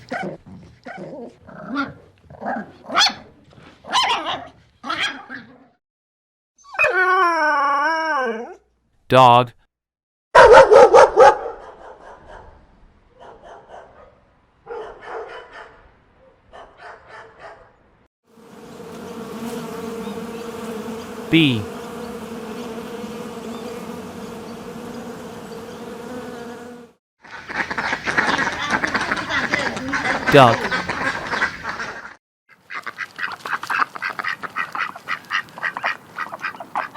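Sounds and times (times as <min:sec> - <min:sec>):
dog barking: 0:02.5 - 0:03.3, 0:03.9 - 0:05.5, 0:10.4 - 0:17.8
bee buzzing: 0:18.3 - 0:27.0.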